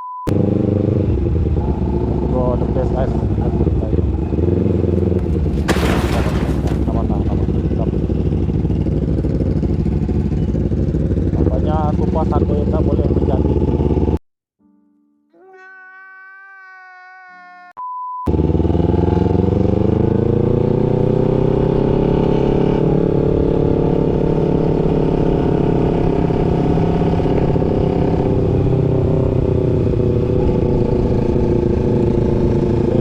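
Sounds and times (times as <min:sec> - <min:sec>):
steady beep: 0:00.0 - 0:00.3
motorcycle cruising: 0:00.3 - 0:14.2, 0:18.3 - 0:33.0.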